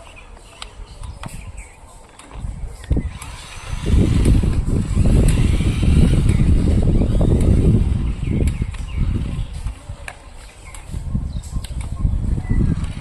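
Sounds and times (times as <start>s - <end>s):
toy truck wheels rumbling on rough ground: 0.0s - 13.0s
electric motor whine: 2.9s - 9.5s.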